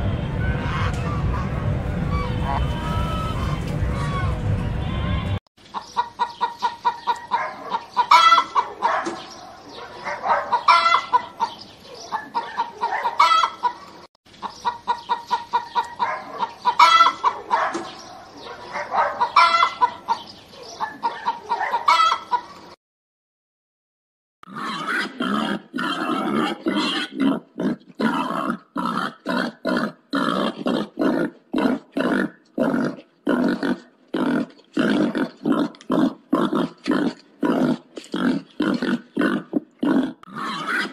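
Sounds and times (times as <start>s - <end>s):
chickens clucking: 5.6s - 22.8s
pig grunting: 24.5s - 40.9s.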